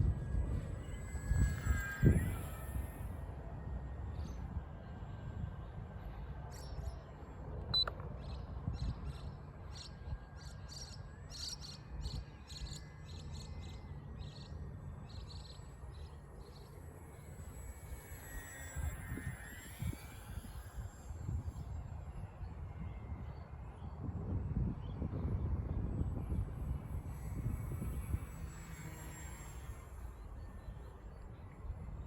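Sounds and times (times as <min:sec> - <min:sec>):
wind on microphone: 0:00.0 - 0:06.1, 0:16.6 - 0:32.0
faint high whine: 0:00.0 - 0:32.0.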